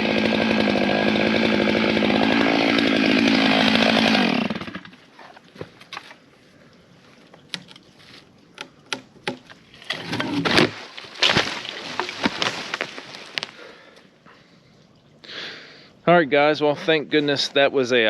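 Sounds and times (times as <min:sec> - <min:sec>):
tree crashing down: 0:00.0 - 0:04.9, 0:09.9 - 0:13.5
wood cracking and snapping: 0:08.6 - 0:13.6.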